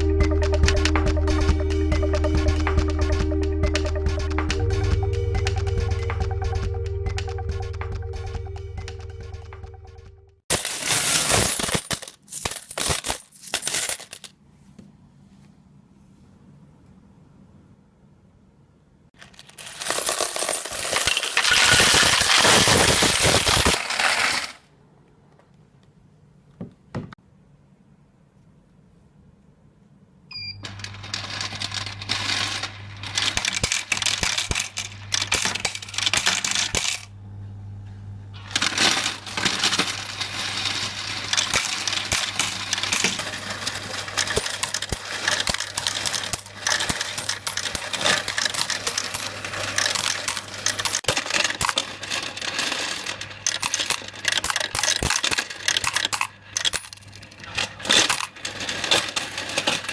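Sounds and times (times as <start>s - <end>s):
coins rattling and clinking: 0.0s - 9.6s, 10.5s - 14.4s, 19.2s - 24.6s, 30.6s - 37.1s, 38.4s - 59.9s
short beep: 30.3s - 30.7s.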